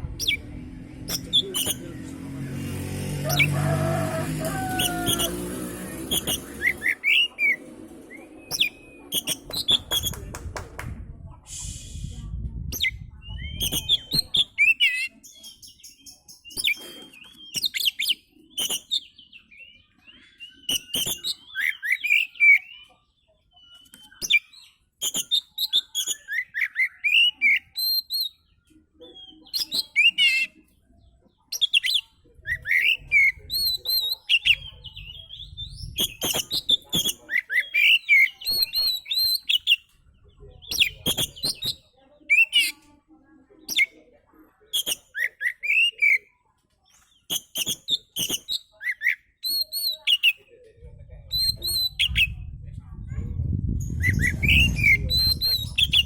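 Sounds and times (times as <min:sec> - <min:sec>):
low rumble: 0:00.0 - 0:03.3, 0:09.6 - 0:14.2, 0:50.8 - 0:56.0
bird singing: 0:04.5 - 0:10.2, 0:13.2 - 0:42.7.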